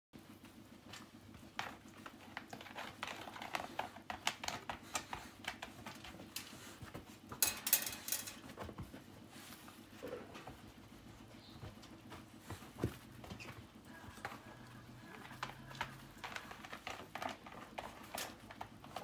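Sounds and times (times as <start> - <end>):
dog paws and ball scuffling: 8.3 - 14.6.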